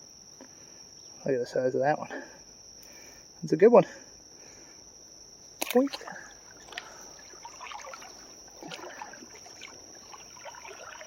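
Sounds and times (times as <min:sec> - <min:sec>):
creek water splashing: 0:05.6 - 0:11.0.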